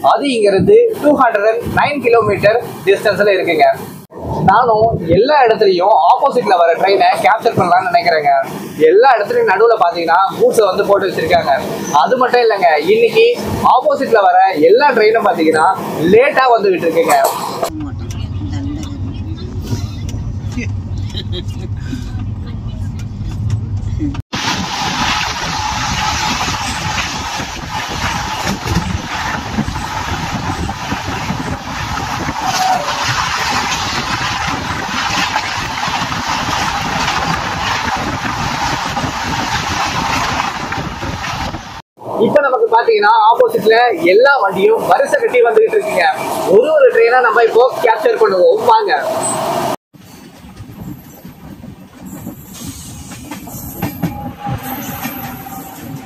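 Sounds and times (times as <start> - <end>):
train wheels rolling on rails: 22.0 - 42.4, 43.3 - 56.0
loud rushing noise: 24.3 - 50.1
wheel clacks: 26.3 - 41.8.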